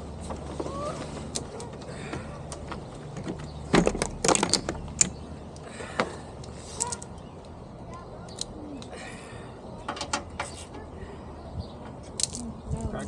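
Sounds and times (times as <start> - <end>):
tools and metal parts clicking: 3.8 - 5.2, 12.0 - 12.5.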